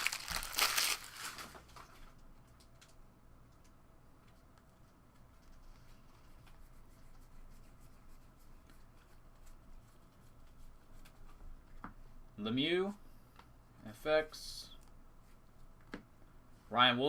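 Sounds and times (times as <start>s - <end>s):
trading cards clicking and rustling: 0.0s - 1.6s
low room hum: 0.0s - 17.0s.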